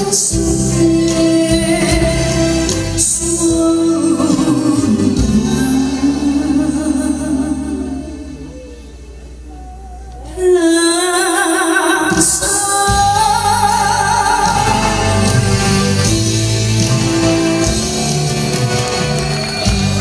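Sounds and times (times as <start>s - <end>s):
band accompaniment with beat: 0.0s - 8.0s, 12.0s - 20.0s.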